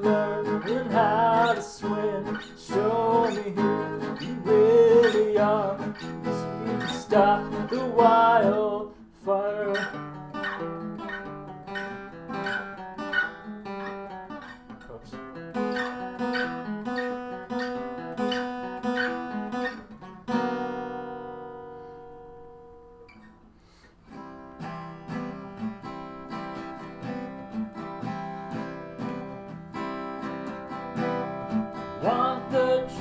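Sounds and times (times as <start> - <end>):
acoustic guitar picking: 0.0 - 33.0.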